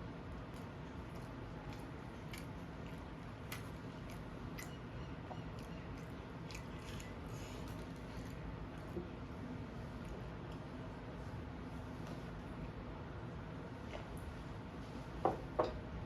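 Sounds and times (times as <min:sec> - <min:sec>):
person chewing: 0:00.4 - 0:09.0
biting clicks: 0:00.6 - 0:08.2.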